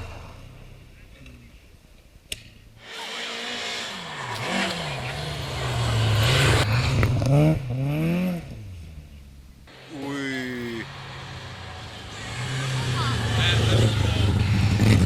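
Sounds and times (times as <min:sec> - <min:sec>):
rally car engine revving past: 0:03.0 - 0:08.9, 0:09.7 - 0:15.0.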